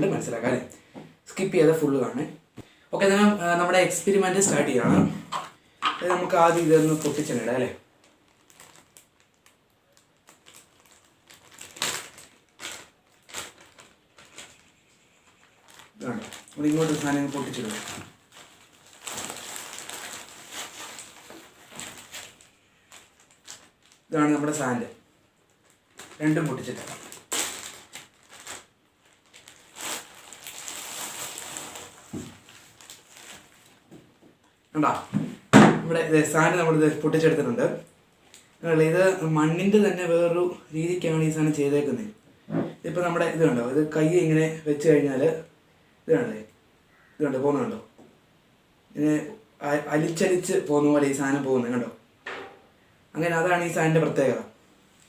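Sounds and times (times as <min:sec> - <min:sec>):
packaging clicks and rustles: 0:08.0 - 0:24.1, 0:25.5 - 0:33.9.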